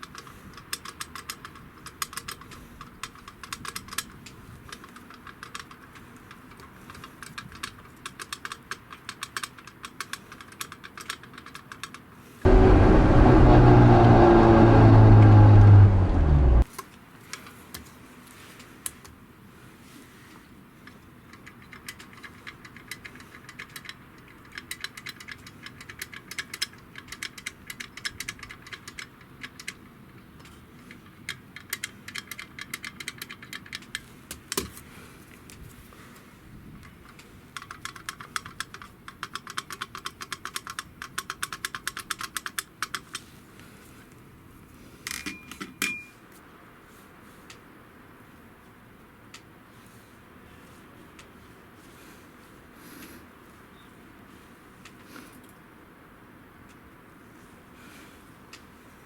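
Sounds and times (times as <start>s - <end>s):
metallic clicking of clutch parts: 0.0s - 16.1s, 21.3s - 34.7s, 36.8s - 43.3s
loud pitched drone: 12.5s - 16.7s.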